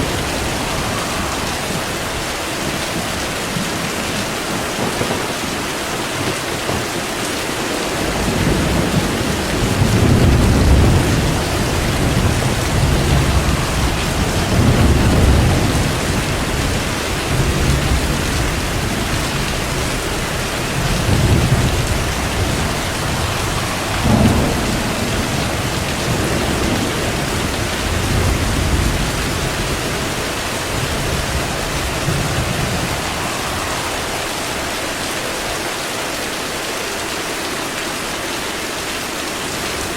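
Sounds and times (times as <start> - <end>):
thunder rumbling: 0.0 - 36.8
steady rain: 0.0 - 39.9
sharp thunder clap: 7.7 - 35.6.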